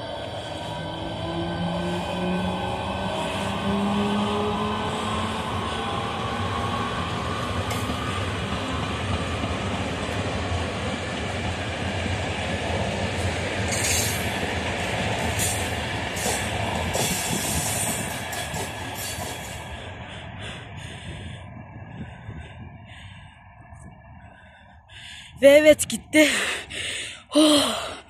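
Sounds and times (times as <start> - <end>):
passenger train rumbling: 0.0 - 28.0
wheels clicking over rail joints: 13.2 - 19.6.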